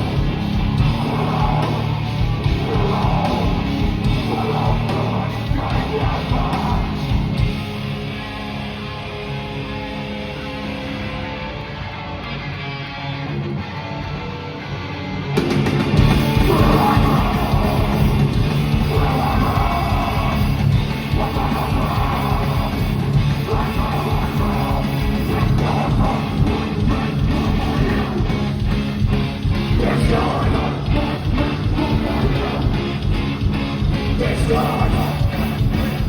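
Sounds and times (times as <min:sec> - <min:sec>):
live metal band playing: 0:00.0 - 0:36.0
solo guitar: 0:00.0 - 0:36.0
person singing: 0:00.8 - 0:07.2, 0:16.2 - 0:28.6, 0:29.6 - 0:33.4, 0:34.0 - 0:36.0.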